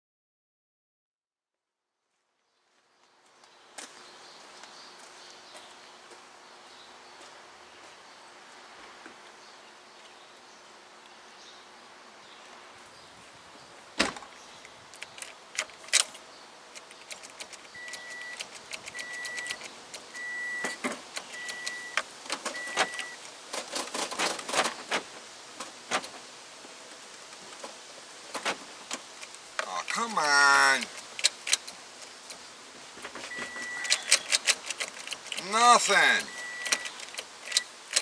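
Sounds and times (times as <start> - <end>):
ignition key clicks and rattles: 16.8 - 23.1
electronic warning chime beeping: 17.8 - 18.4, 19.0 - 19.6, 20.2 - 20.8, 21.4 - 22.0, 22.6 - 23.2, 33.3 - 34.1, 36.0 - 36.9.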